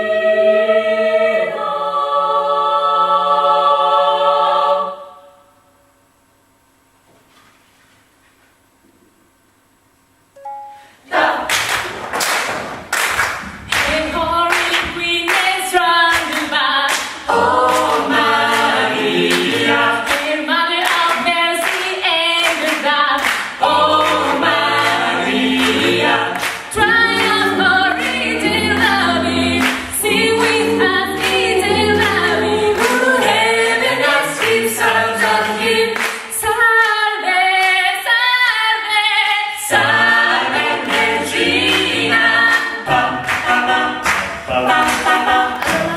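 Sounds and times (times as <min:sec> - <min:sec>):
vocal group singing in harmony: 0:00.0 - 0:05.5, 0:10.6 - 0:11.8, 0:13.8 - 0:45.9
percussive hits: 0:11.5 - 0:15.5
sung bass line: 0:23.6 - 0:34.8.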